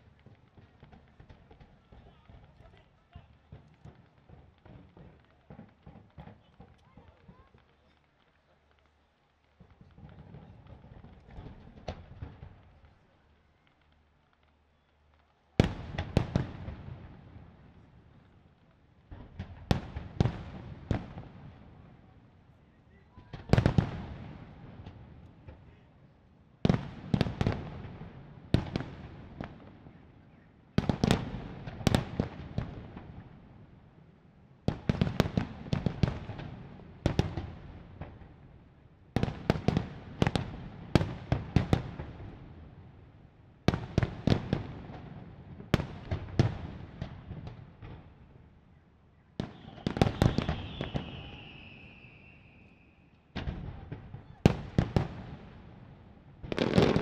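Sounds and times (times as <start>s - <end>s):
fireworks bursting: 0.0s - 18.3s, 49.4s - 55.6s, 56.4s - 57.0s
rumble of fireworks: 0.0s - 57.0s.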